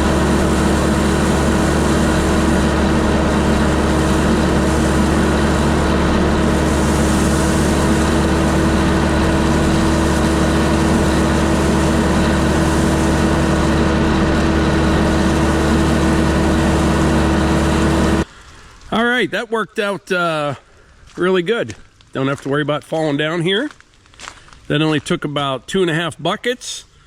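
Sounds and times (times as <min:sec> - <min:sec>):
tractor diesel engine running: 0:00.0 - 0:18.3.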